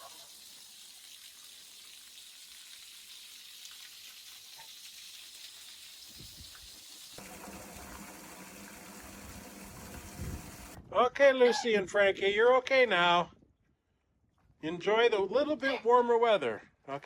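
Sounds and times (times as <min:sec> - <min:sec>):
garden hose spraying water: 0:00.0 - 0:10.8.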